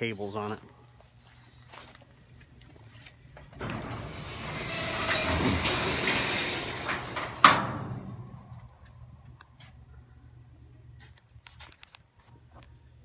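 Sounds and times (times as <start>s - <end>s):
roll-up door rattling: 3.4s - 8.8s
door clanking: 3.4s - 8.9s.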